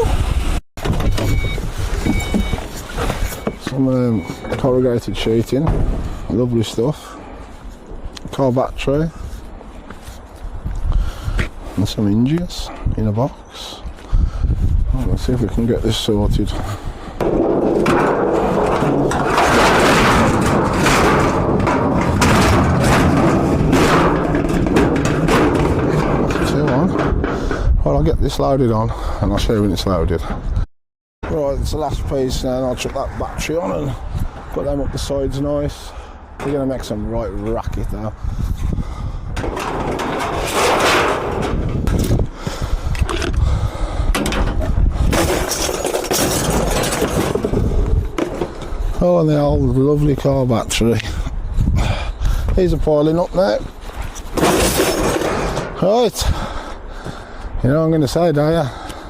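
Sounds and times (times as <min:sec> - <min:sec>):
scrap rattling and scraping: 0:00.1 - 0:12.8, 0:15.0 - 0:28.1, 0:38.3 - 0:51.3, 0:52.3 - 0:57.5
scrap metal knocks and thuds: 0:00.8 - 0:06.6, 0:16.5 - 0:27.8, 0:39.4 - 0:43.4, 0:44.1 - 0:49.0, 0:53.5 - 0:57.2.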